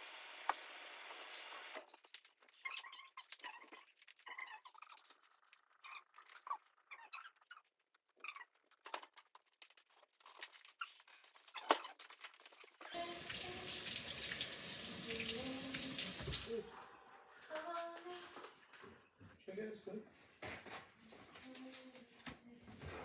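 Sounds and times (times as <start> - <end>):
tap water running into sink: 0.0 - 1.8, 12.9 - 16.6.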